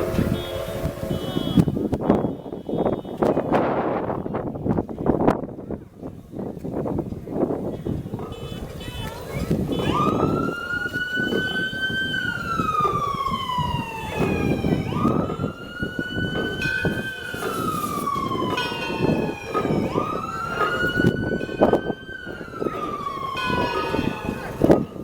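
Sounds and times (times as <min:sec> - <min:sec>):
siren wailing: 0:00.0 - 0:03.4, 0:09.4 - 0:25.0.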